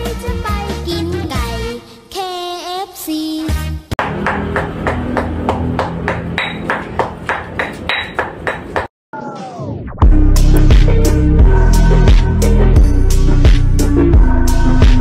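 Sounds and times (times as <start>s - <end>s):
rhythmic knocking of food chopping: 4.0s - 8.9s.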